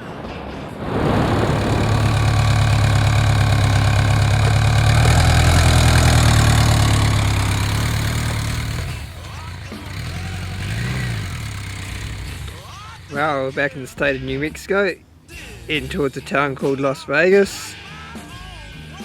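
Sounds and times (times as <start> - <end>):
motorcycle engine running: 1.0 - 13.8.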